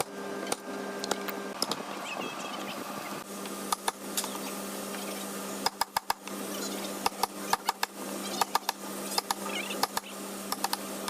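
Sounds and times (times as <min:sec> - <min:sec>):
steady low hum: 0:00.0 - 0:11.0
faint bird chirps: 0:01.9 - 0:03.2.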